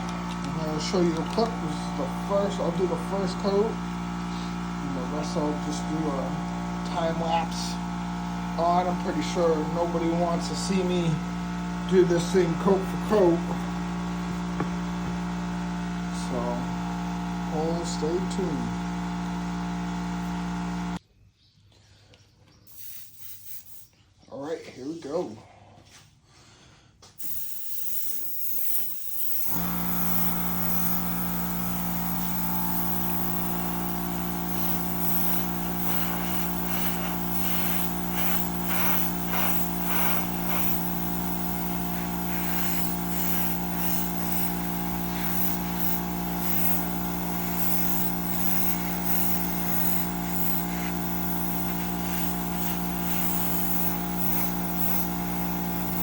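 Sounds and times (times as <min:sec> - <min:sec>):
air compressor motor hum: 0:00.0 - 0:21.0, 0:27.2 - 0:56.0
airbrush spray hiss: 0:27.2 - 0:56.0.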